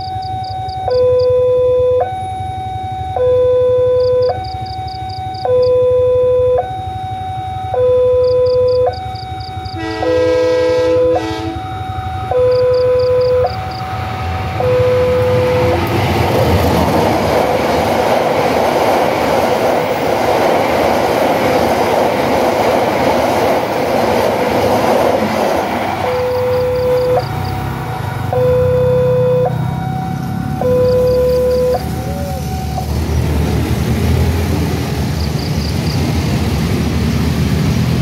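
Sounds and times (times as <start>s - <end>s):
train wheels rumbling on rails: 9.1s - 28.7s, 29.4s - 38.0s
locomotive horn: 9.6s - 13.8s, 14.6s - 16.0s, 26.0s - 32.9s.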